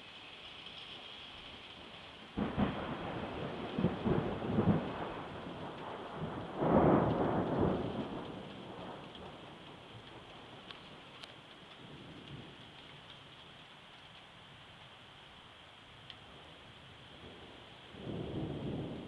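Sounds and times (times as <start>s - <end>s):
steady rain: 0.0s - 19.0s
thunder crack: 2.4s - 9.4s
thunder rumble: 2.4s - 13.0s, 17.2s - 19.0s.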